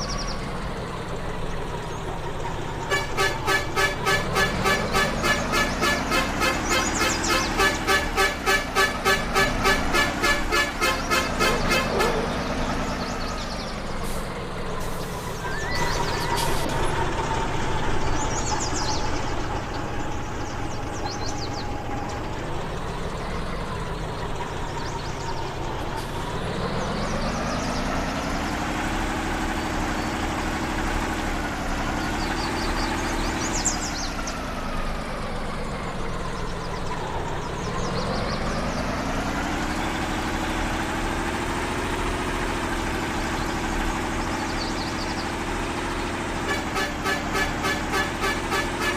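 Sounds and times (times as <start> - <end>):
off-road vehicle engine revving: 0.0 - 48.9.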